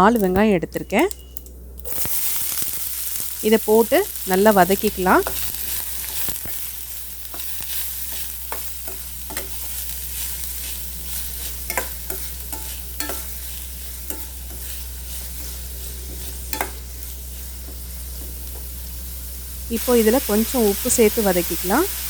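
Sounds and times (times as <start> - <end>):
onions sizzling in oil: 0.0 - 22.0
spatula scraping a pan: 7.3 - 17.6.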